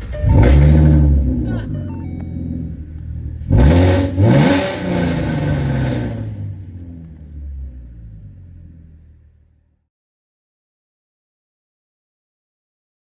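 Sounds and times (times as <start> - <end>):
engine revving: 0.0 - 9.6.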